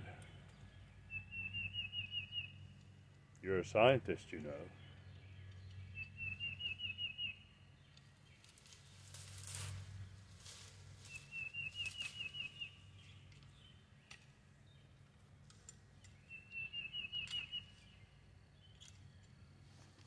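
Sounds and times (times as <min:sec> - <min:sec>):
songbird singing: 0:00.0 - 0:20.0
faint clicks and rustles: 0:07.9 - 0:12.2.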